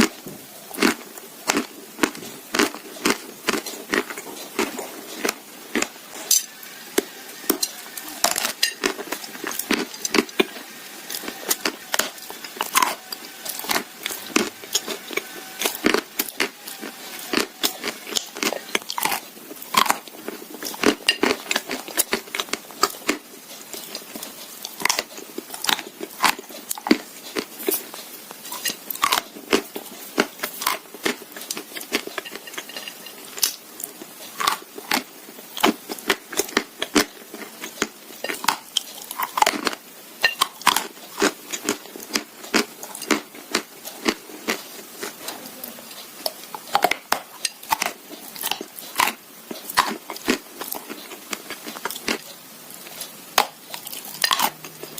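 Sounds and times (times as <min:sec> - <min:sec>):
chewing: 0:00.0 - 0:54.9
crunching clay between teeth: 0:00.8 - 0:27.9.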